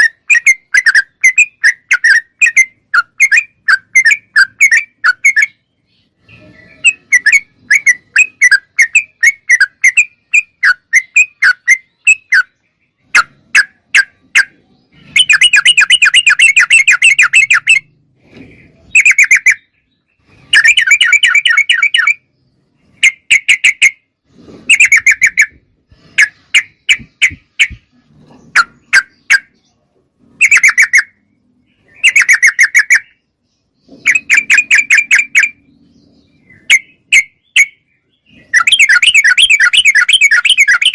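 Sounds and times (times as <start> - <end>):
bulbul chattering calls: 0.0 - 40.9.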